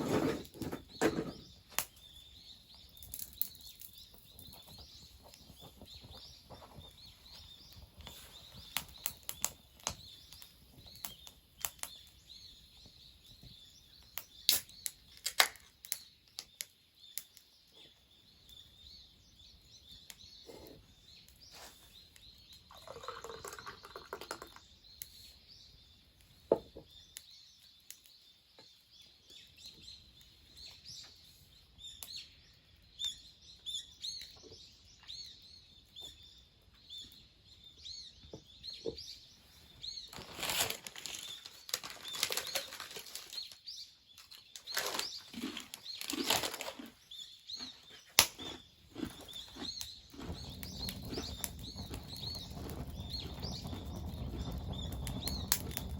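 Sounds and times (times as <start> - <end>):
small birds chirping: 0.0 - 55.9
rustling or flapping: 40.1 - 43.6.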